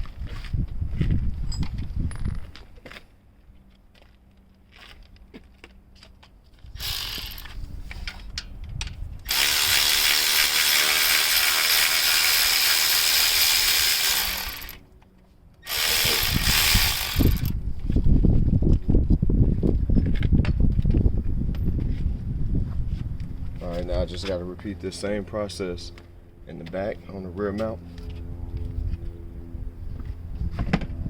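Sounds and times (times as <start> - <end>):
power tool loosening bolts: 6.8 - 7.6, 9.3 - 14.8, 15.6 - 17.6.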